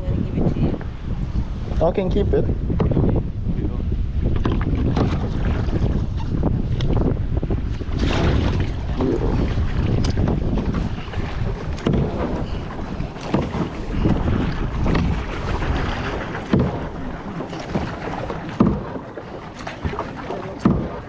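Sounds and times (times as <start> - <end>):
wind rumbling on microphone: 0.0 - 21.0
paddle strokes splashing water: 4.2 - 21.0
sharp splashes or knocks: 4.3 - 6.1, 7.7 - 21.0.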